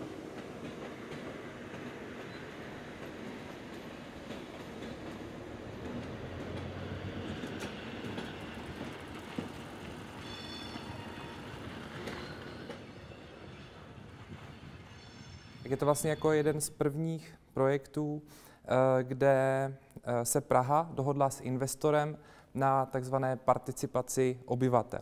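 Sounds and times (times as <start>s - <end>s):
train wheels rumbling on track: 0.0s - 16.6s
high thin squeal: 10.2s - 11.4s.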